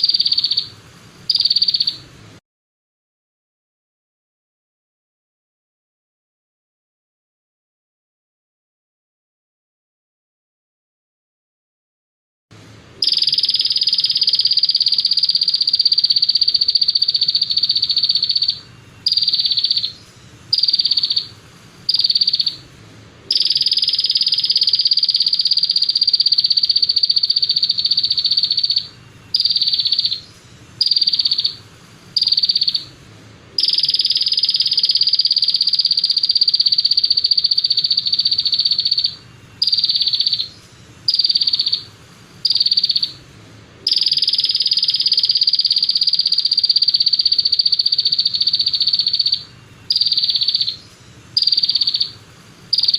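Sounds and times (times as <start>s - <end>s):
songbird buzzing trill: 1.3s - 2.0s, 13.0s - 21.3s, 21.9s - 22.6s, 23.3s - 30.2s, 30.8s - 31.6s, 43.9s - 50.8s.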